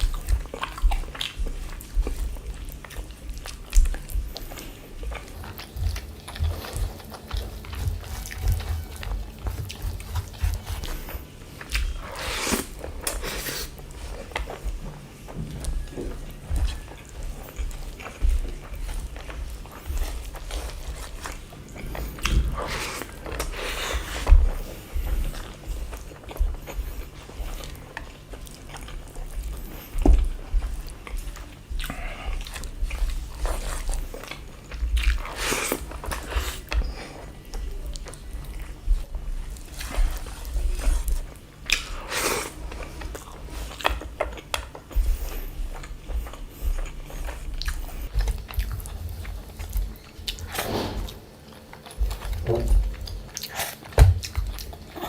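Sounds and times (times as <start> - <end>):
person chewing food: 0.0 - 55.0
low thuds: 21.8 - 25.2.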